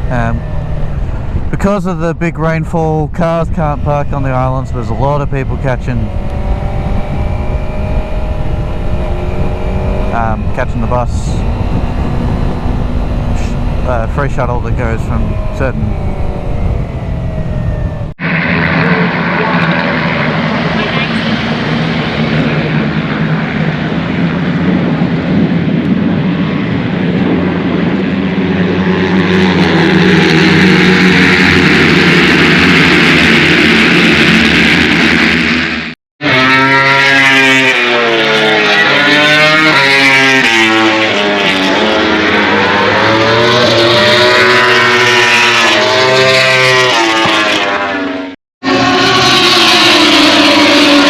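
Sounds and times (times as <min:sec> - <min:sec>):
motorcycle engine revving: 0:00.0 - 0:01.6, 0:03.4 - 0:18.2, 0:18.9 - 0:51.0
wind noise: 0:00.0 - 0:35.6
motorcycle engine running: 0:03.6 - 0:18.2, 0:28.7 - 0:48.3.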